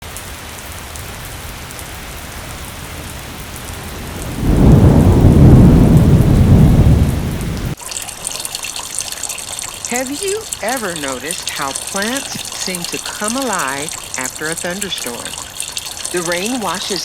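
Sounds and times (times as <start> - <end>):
steady rain falling: 0.0 - 17.0
low rumble of thunder: 2.2 - 7.8.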